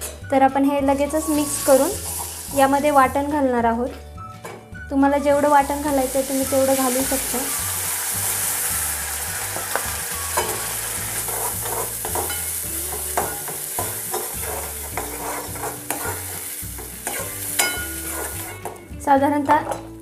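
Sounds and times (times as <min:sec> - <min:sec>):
masala paste sizzling in hot oil: 0:01.1 - 0:03.2, 0:05.3 - 0:18.8
metal spoon scraping and clinking: 0:09.6 - 0:18.8.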